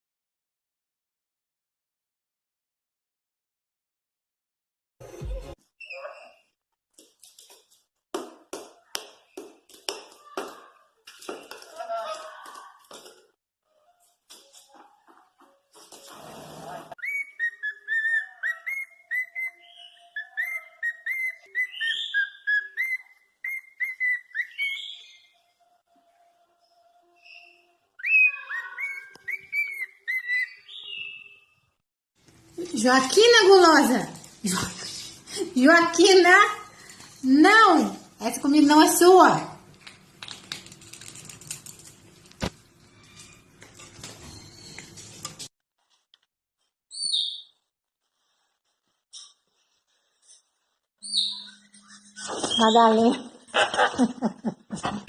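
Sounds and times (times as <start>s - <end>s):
parrot whistling a tune: 17.0s - 25.3s, 27.2s - 31.4s.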